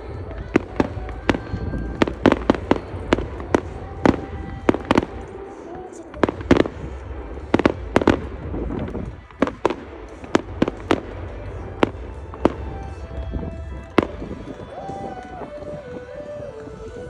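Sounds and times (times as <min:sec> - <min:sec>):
low rumble: 0:00.0 - 0:05.3, 0:06.3 - 0:14.6
fireworks bangs: 0:00.0 - 0:17.0
show music: 0:00.0 - 0:17.0.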